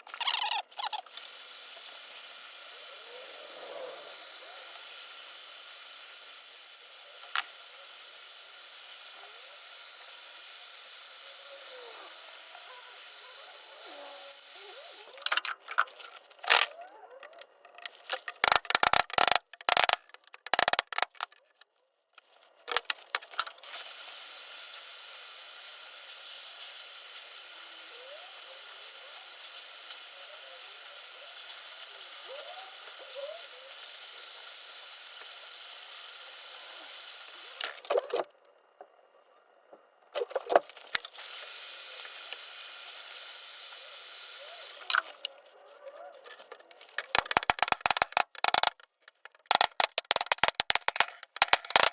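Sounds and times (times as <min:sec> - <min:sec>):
blowing air hiss: 0:01.1 - 0:15.1
sharp clicks: 0:16.4 - 0:21.4, 0:46.4 - 0:51.9.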